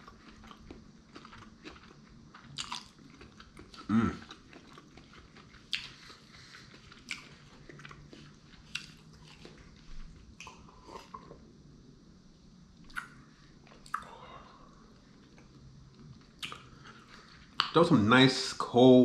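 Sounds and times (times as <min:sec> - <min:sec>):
person chewing food: 0:00.0 - 0:11.5, 0:12.8 - 0:14.3, 0:14.9 - 0:17.8
mouth clicks and smacks: 0:12.8 - 0:13.2, 0:13.8 - 0:14.1, 0:16.3 - 0:16.9, 0:17.5 - 0:17.8.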